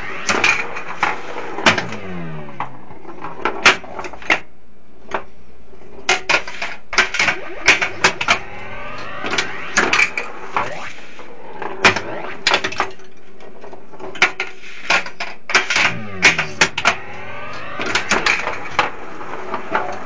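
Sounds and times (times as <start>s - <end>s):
electronic sound effects: 7.0s - 13.0s, 15.6s - 20.0s
pinball clicks and knocks: 15.5s - 17.0s.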